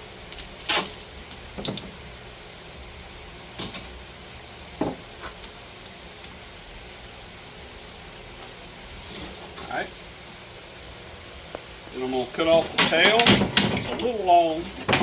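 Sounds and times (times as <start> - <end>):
knocks of handling plywood board: 14.8 - 15.0.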